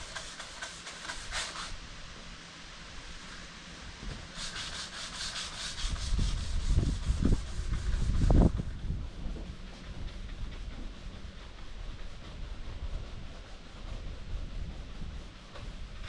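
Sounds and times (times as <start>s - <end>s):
sandpaper rubbing: 0.0s - 1.8s, 4.3s - 16.0s.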